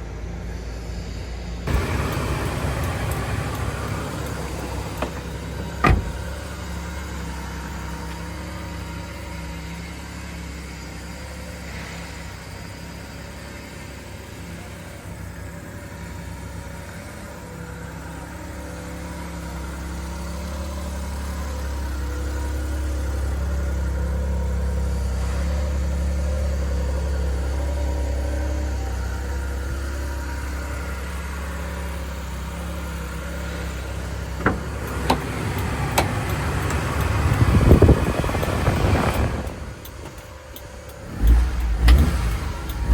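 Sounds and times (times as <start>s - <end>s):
small truck engine running: 0.0s - 42.9s
sharp clicks: 34.4s - 42.9s.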